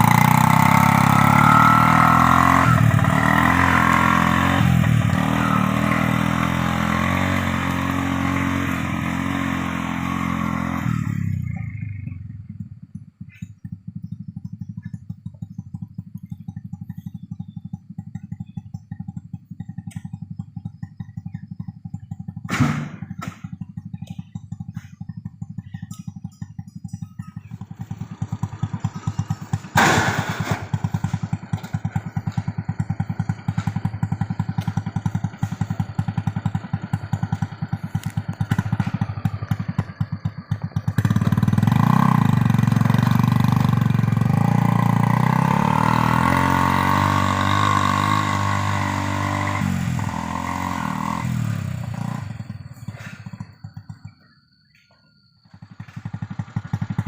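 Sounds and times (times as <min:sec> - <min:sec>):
motorcycle engine running: 0:00.0 - 0:57.0
sharp knock: 0:22.5 - 0:23.4.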